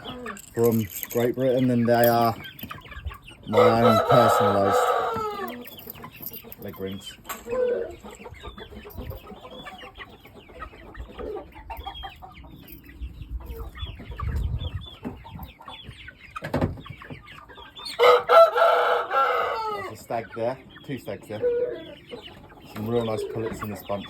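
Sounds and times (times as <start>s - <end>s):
young fowl clucking and peeping: 0.0s - 24.0s.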